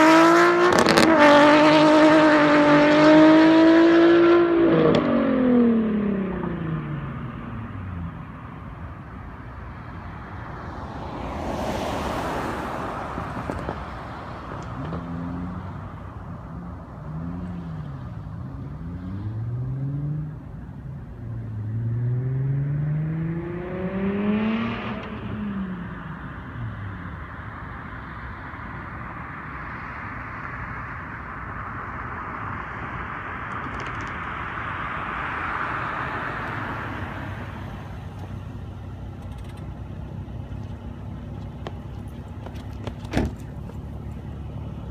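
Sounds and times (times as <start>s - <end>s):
car engine revving: 0.0s - 8.1s, 21.3s - 26.9s.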